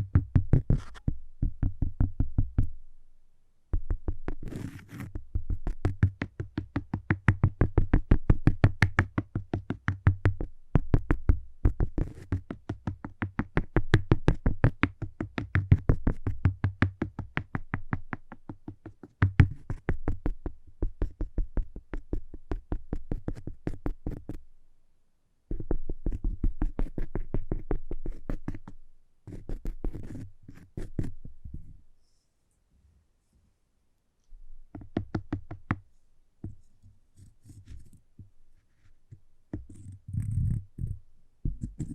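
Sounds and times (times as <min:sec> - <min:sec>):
rapid tapping on cork: 0:00.0 - 0:02.7, 0:03.8 - 0:24.4, 0:25.5 - 0:31.4, 0:34.7 - 0:35.8.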